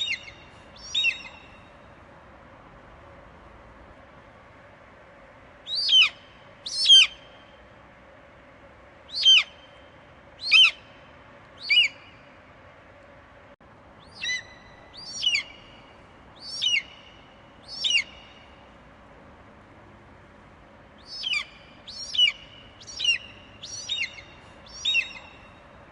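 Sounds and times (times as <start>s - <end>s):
eagle screeching calls: 0.0s - 1.5s, 5.7s - 7.2s, 9.1s - 9.6s, 10.4s - 10.9s, 11.6s - 12.0s, 14.0s - 15.7s, 16.4s - 17.0s, 17.7s - 18.3s, 21.0s - 25.5s
low hiss: 0.0s - 25.9s.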